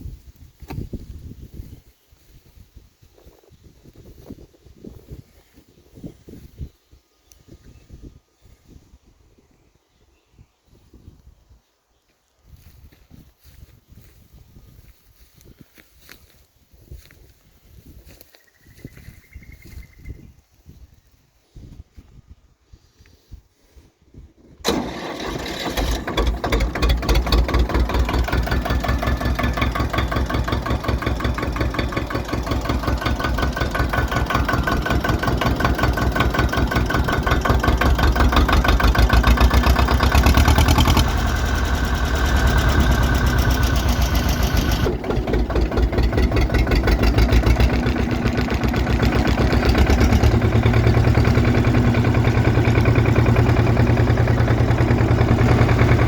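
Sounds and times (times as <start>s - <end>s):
tractor diesel engine running: 24.6s - 56.0s.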